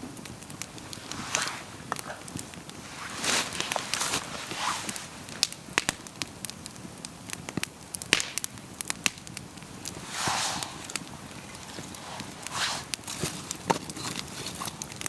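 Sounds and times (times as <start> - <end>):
campfire crackling and popping: 0.0 - 15.0
rushing hiss: 2.8 - 5.3, 9.9 - 13.0.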